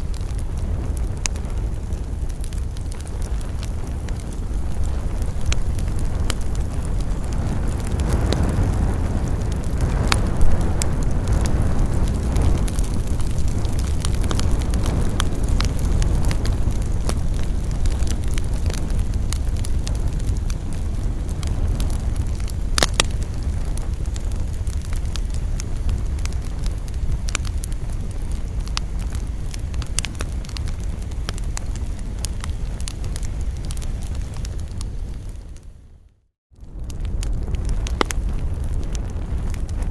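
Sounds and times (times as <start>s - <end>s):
fire crackling and popping: 0.0s - 39.9s
wood fire rumbling: 0.0s - 39.9s.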